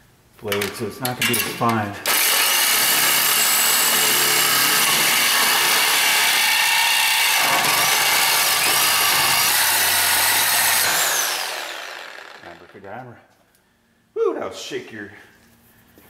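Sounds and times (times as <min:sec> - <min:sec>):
reciprocating saw cutting metal pipe: 0:02.1 - 0:12.6.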